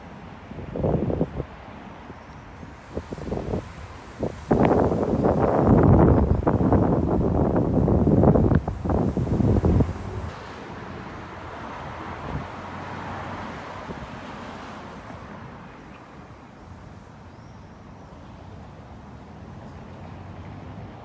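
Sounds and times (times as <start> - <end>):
car passing: 2.9 - 15.8.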